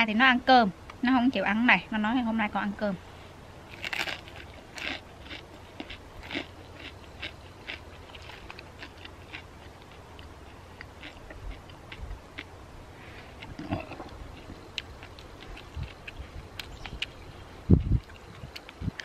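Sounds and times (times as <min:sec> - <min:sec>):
crispy food crunching when chewed: 0:03.7 - 0:12.6, 0:13.2 - 0:19.0.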